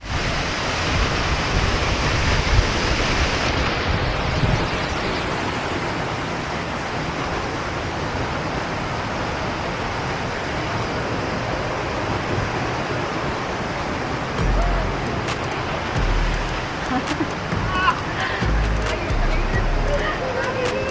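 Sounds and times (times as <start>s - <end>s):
low buffeting: 14.0s - 20.9s.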